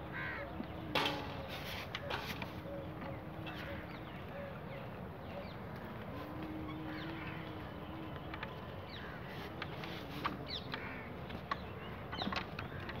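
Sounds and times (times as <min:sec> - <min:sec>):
birds chirping: 0:00.0 - 0:13.0
steady outdoor background: 0:00.0 - 0:13.0.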